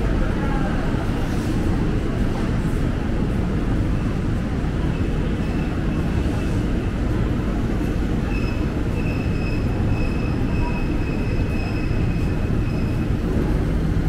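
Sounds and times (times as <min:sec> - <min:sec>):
electric train rumbling: 0:00.0 - 0:14.0
high wavering wheel squeal: 0:08.3 - 0:13.1.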